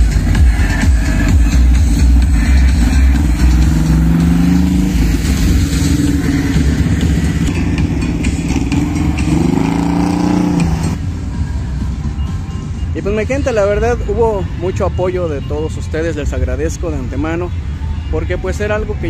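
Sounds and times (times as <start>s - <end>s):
other vehicle engines: 0.0s - 19.0s
car engine revving: 1.1s - 11.0s.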